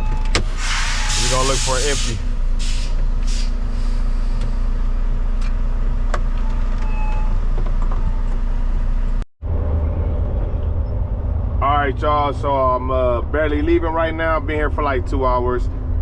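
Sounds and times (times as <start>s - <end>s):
diesel truck engine idling: 0.4s - 6.1s
short air hisses: 0.6s - 4.4s.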